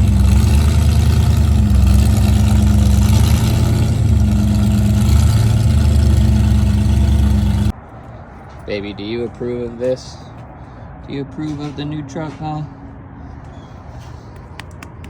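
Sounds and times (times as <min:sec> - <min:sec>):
truck engine droning: 0:00.0 - 0:12.7.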